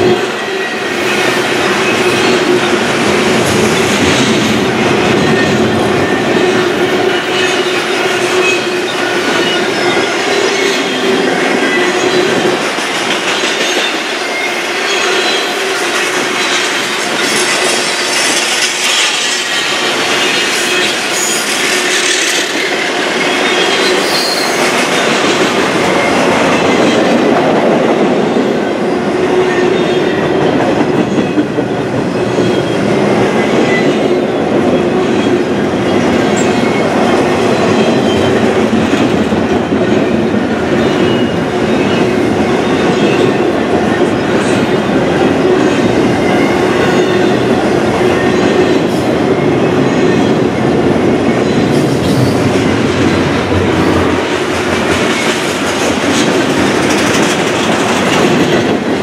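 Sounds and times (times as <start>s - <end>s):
freight cars rumbling and clattering: 1.1s - 14.0s, 29.8s - 59.0s.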